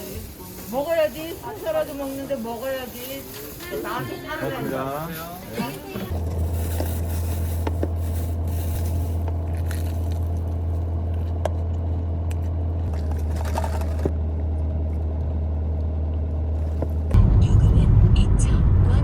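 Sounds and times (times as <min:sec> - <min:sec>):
car engine low rumble: 0:05.9 - 0:19.0.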